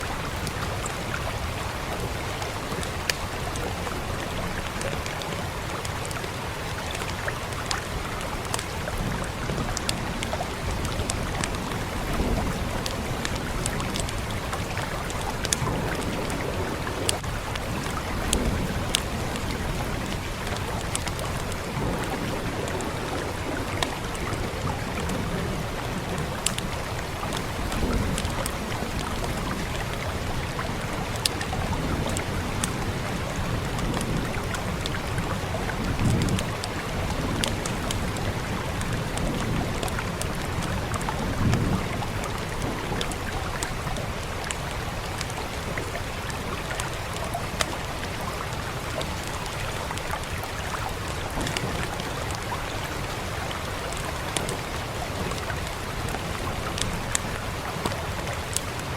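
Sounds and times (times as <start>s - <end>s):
steady rain: 0.0s - 58.9s
fireplace crackling and popping: 4.5s - 25.0s.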